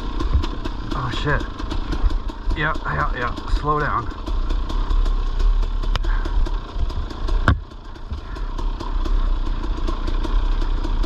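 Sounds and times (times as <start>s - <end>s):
dirt bike engine low revs: 0.0s - 11.0s
bike clattering knocks: 7.4s - 8.3s.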